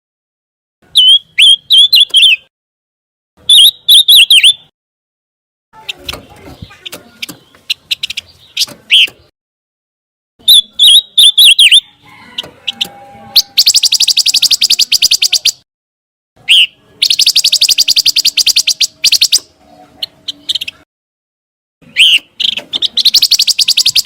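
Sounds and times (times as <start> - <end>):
bird chirping and trilling: 0.9 - 2.5, 3.4 - 4.7, 5.8 - 9.3, 10.4 - 15.6, 16.4 - 20.9, 21.8 - 24.0.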